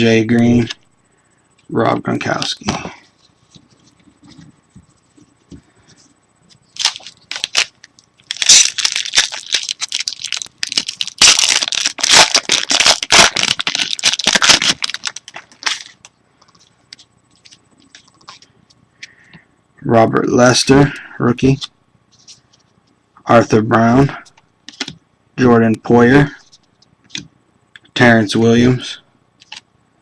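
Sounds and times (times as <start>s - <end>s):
foil wrapper tearing and crinkling: 6.8s - 16.1s.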